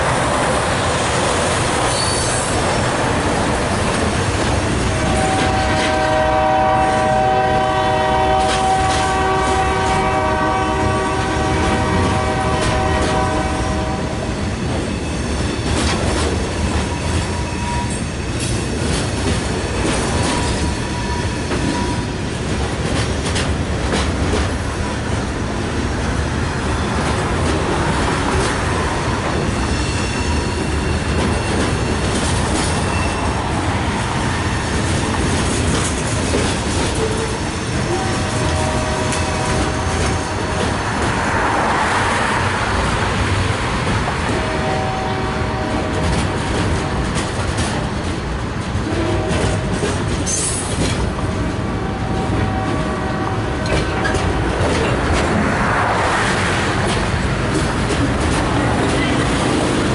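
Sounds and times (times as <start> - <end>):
train cars rumbling by: 0.0 - 59.9
locomotive horn: 4.8 - 14.3, 37.0 - 41.9, 44.2 - 47.0, 48.8 - 50.0, 51.7 - 54.4
wheels clicking over rail joints: 34.7 - 38.1.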